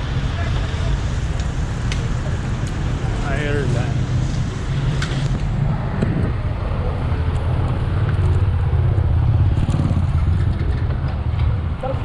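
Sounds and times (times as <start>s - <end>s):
bicycle road noise: 0.0s - 12.0s
wind rumble: 0.0s - 12.0s.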